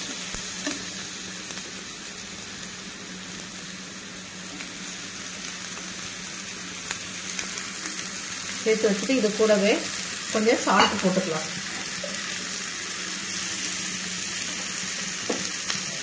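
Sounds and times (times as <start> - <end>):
vegetables sizzling in hot oil: 0.0 - 16.0.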